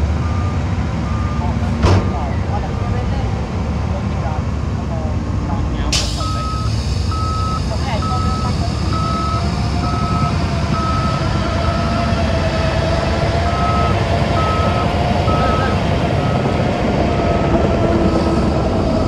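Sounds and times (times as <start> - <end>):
diesel engine running: 0.0 - 19.0
reversing alarm beeping: 0.2 - 2.3, 6.0 - 12.7, 13.4 - 19.0.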